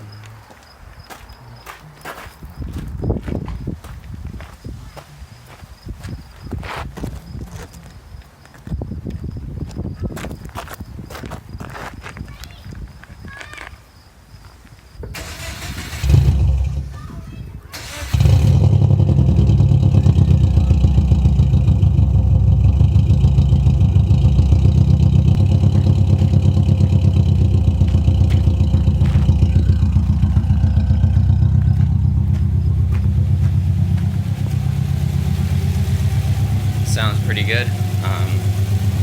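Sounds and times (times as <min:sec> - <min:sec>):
loud car engine idling: 0:17.8 - 0:39.0.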